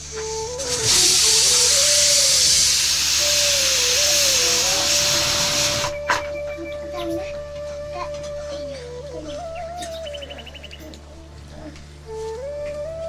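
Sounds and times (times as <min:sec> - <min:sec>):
food frying in hot oil: 0:00.2 - 0:05.9.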